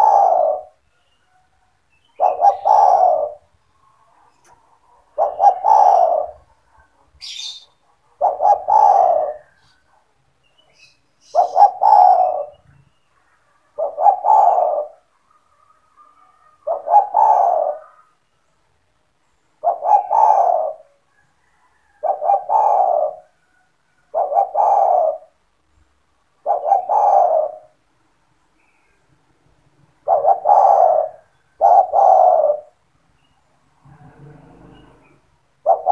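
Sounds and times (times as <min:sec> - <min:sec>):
dove cooing: 0:00.0 - 0:00.8, 0:01.9 - 0:10.0, 0:10.7 - 0:18.2, 0:19.6 - 0:25.4, 0:26.4 - 0:27.8, 0:29.9 - 0:32.8, 0:33.9 - 0:35.9.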